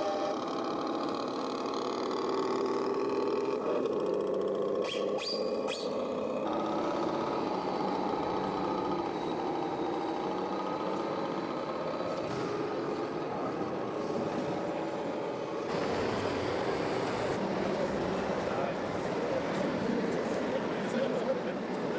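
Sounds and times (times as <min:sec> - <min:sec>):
toy tractor motor drone: 0:00.0 - 0:14.1.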